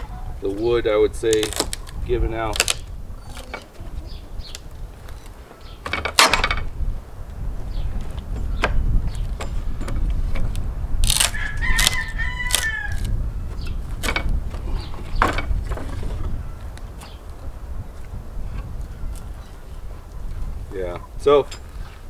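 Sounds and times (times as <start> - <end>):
sharp cracks: 1.2 - 3.7, 10.6 - 13.2
rooster crowing: 11.3 - 13.2.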